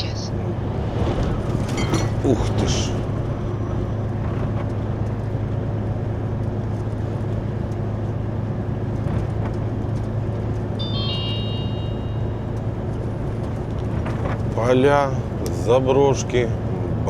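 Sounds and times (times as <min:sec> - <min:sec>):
road and wind noise: 0:00.0 - 0:17.0
truck engine drone: 0:00.0 - 0:17.0
short high electronic beep: 0:10.8 - 0:12.6.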